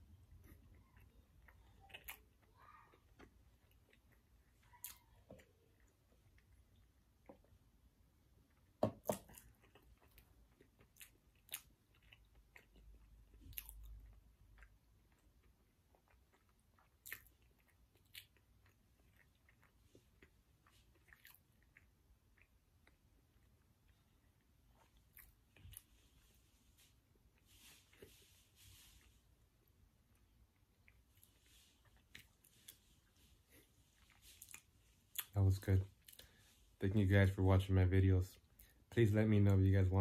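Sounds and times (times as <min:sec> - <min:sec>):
faint chewing: 0:00.0 - 0:36.8.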